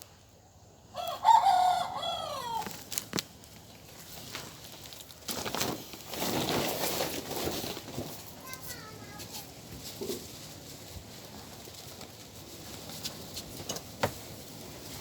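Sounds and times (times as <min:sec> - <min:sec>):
rooster crowing: 0:00.9 - 0:02.8
rustling noise: 0:02.4 - 0:15.0.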